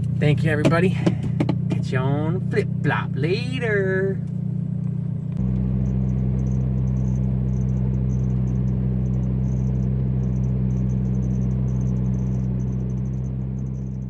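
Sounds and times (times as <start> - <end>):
car engine idling: 0.0 - 14.0
insects chirping: 5.1 - 14.0.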